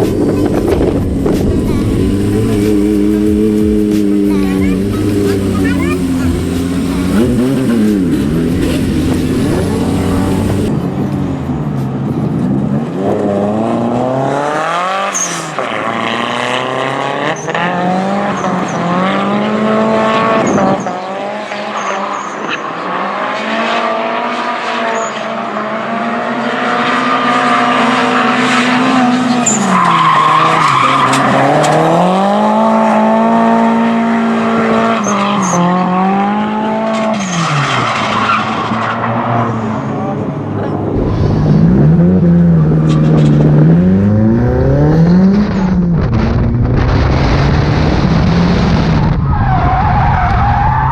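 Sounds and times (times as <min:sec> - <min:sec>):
car engine at high revs: 0:00.0 - 0:50.9
tyres squealing: 0:04.2 - 0:10.7.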